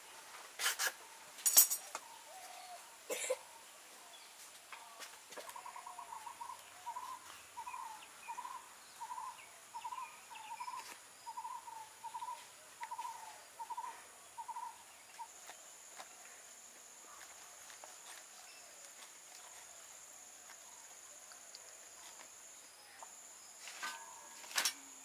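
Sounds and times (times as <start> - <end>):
high insect hum: 0.0 - 25.0.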